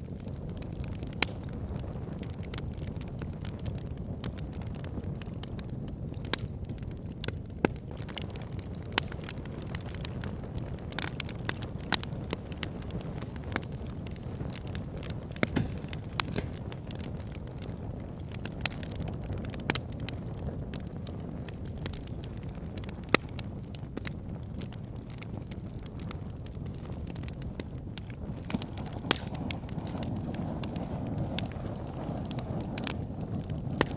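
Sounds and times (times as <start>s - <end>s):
fire pops and snaps: 0.0s - 33.9s
wood fire crackling: 0.0s - 33.9s.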